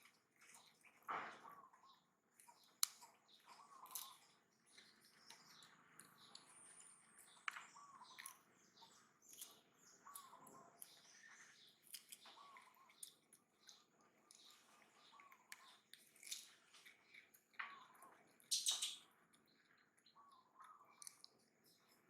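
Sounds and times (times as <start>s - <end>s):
faint bird chirps: 0.0s - 22.0s.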